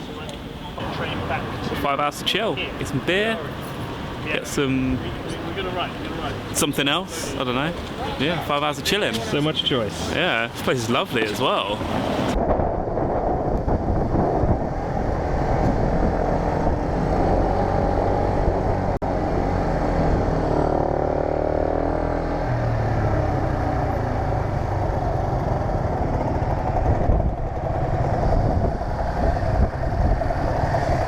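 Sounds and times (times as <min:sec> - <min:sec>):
motorcycle engine running: 0:23.3 - 0:31.0.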